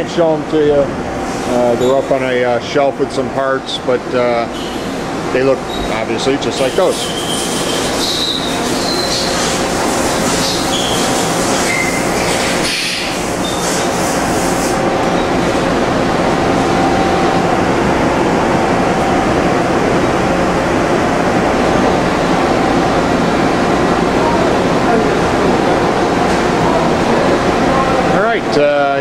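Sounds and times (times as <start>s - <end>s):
industrial machinery running: 0.0s - 29.0s
high squeals: 4.5s - 13.9s.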